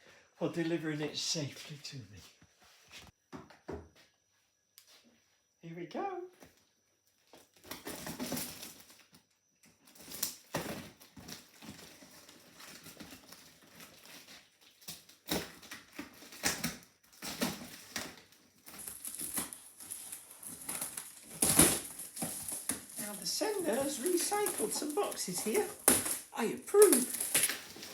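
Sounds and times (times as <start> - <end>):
packing tape rasping: 9.9 - 27.9
cardboard box being opened: 18.8 - 27.9.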